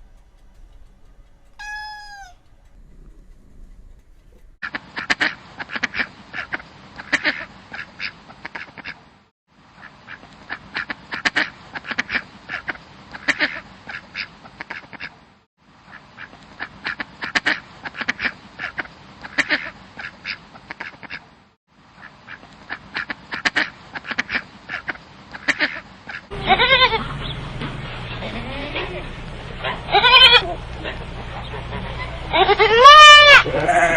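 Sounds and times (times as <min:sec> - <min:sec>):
bird giving short sharp calls: 0:01.6 - 0:02.4.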